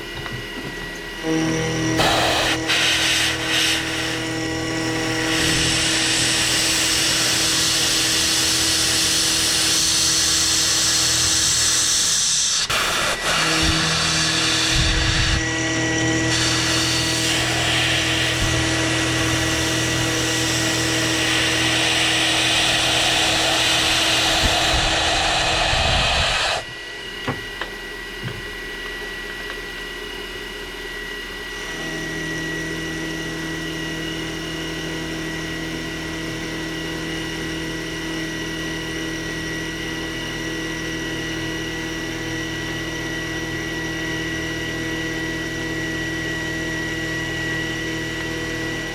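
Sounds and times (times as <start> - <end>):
spindle hum: 0.0 - 29.6
milling machine cutting metal: 0.4 - 26.8.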